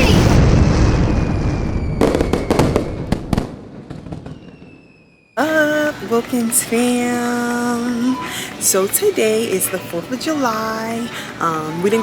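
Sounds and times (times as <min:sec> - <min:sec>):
sharp firework cracks: 0:00.0 - 0:05.2
fireworks bursting and crackling: 0:00.0 - 0:08.2.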